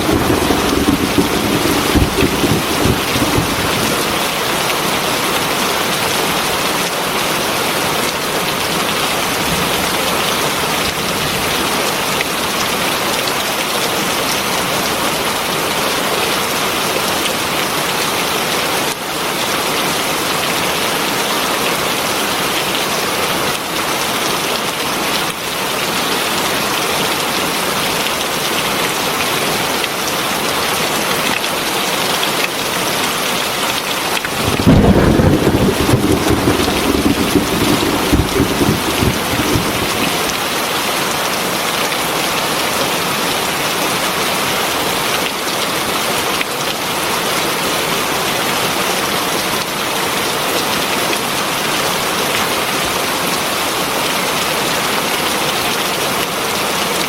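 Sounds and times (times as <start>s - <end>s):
heavy rain falling: 0.0s - 11.8s, 34.0s - 41.4s.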